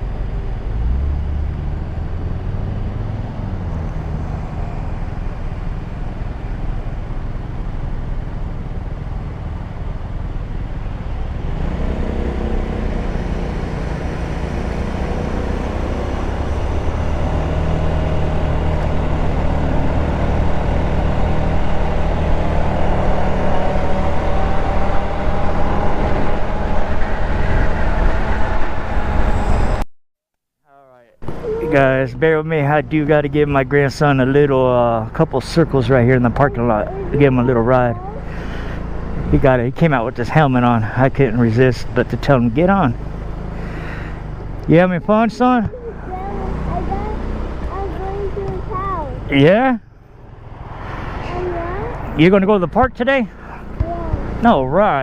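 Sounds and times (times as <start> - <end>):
road noise: 0.0 - 29.8, 30.8 - 55.0
scooter engine running: 34.3 - 50.6.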